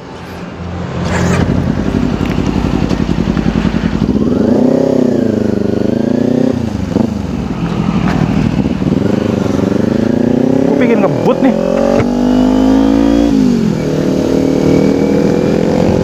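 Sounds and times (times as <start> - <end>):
motorcycle engine revving: 0.8 - 16.0.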